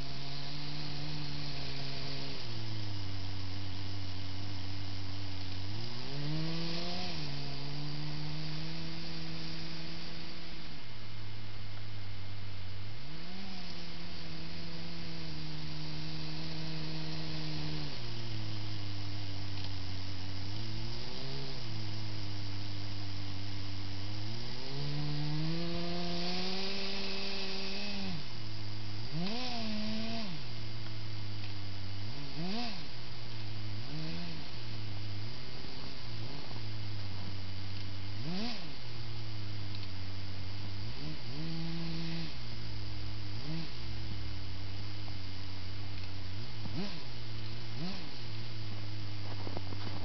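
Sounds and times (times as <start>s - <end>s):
electric motors whining: 0.0s - 10.8s, 13.0s - 33.0s
steady low hum: 0.0s - 50.0s.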